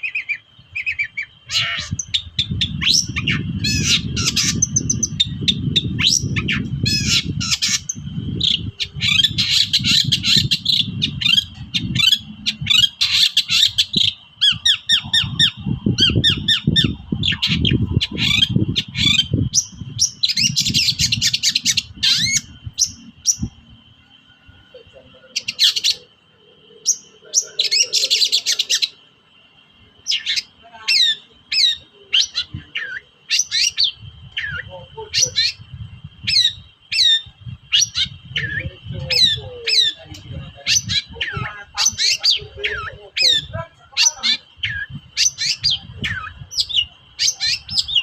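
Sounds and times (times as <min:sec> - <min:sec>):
bird chattering song: 0:00.0 - 0:48.0
faint steady high tone: 0:22.6 - 0:33.3.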